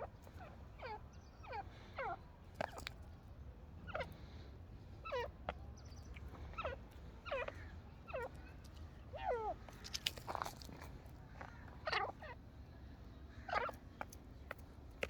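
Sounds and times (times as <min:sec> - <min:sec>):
francolins calling: 0:00.0 - 0:02.8, 0:03.8 - 0:09.9, 0:11.2 - 0:14.2.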